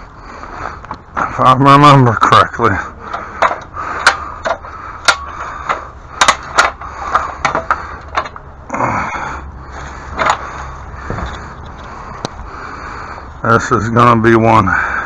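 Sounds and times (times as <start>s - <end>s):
sharp clicks and knocks: 3.1s - 8.5s, 10.2s - 10.5s.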